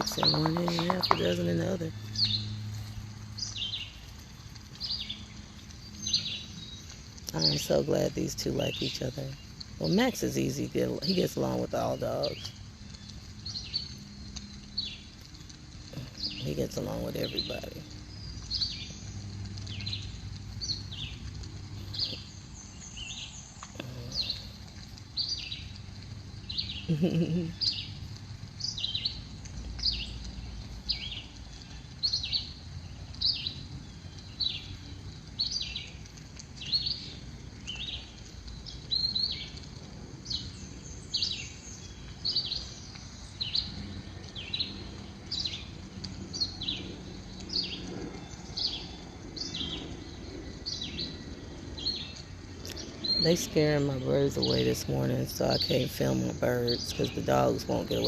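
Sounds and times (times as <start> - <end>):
songbird calling: 0.0 - 4.0, 21.8 - 25.8, 40.2 - 58.0.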